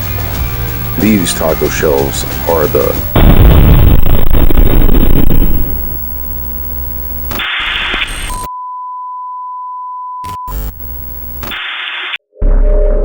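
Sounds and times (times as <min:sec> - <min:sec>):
music: 0:00.0 - 0:04.0
high censor beep tone: 0:03.0 - 0:11.6
short noisy burst: 0:03.2 - 0:08.4.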